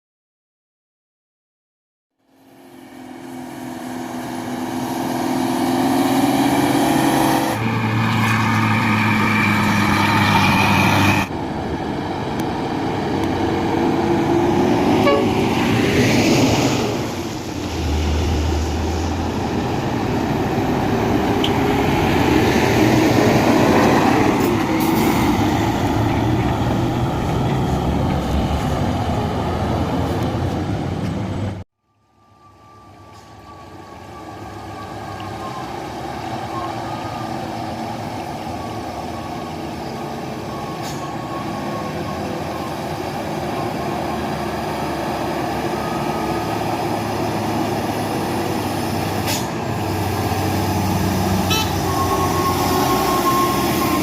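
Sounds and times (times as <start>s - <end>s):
dump trucks driving past: 2.2s - 54.0s.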